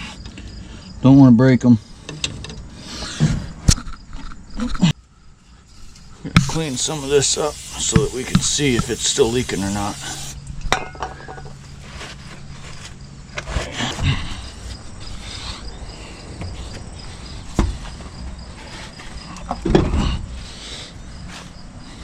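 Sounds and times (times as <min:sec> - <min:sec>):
insects chirping: 0:00.0 - 0:22.0
rustling: 0:11.6 - 0:15.6.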